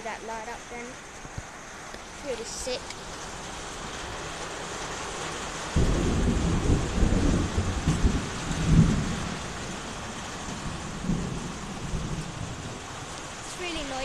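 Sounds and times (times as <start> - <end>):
heavy rain: 0.0 - 14.0
thunder rumbling: 3.6 - 14.0.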